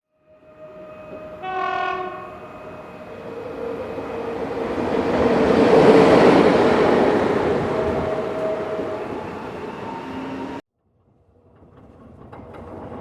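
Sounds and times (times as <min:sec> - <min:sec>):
train horn blast: 0:00.1 - 0:04.6
train running noise: 0:00.3 - 0:10.6.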